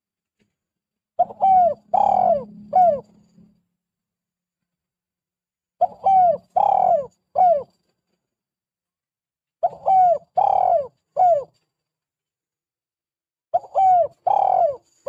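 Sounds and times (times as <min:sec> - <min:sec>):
dove cooing: 0:01.2 - 0:03.5, 0:05.8 - 0:07.8, 0:09.6 - 0:11.6, 0:13.6 - 0:15.0.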